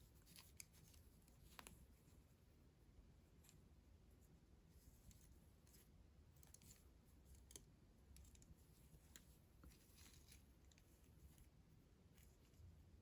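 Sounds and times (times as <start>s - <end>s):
faint plastic clicks: 4.9s - 11.5s.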